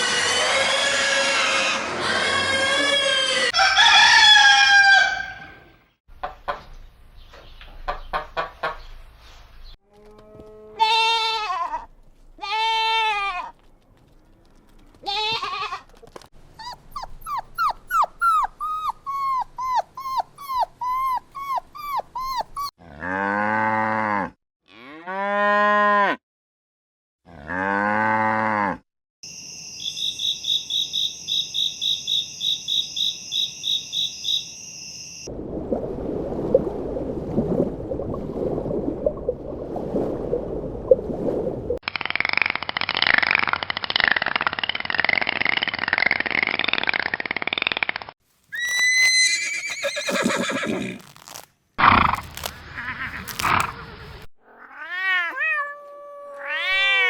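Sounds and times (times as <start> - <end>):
rough noisy animal call: 0.0 - 3.6, 16.6 - 22.7, 48.5 - 54.3
rapid animal calls: 16.6 - 22.7, 48.5 - 54.3
short animal calls: 16.6 - 22.7, 48.5 - 51.1.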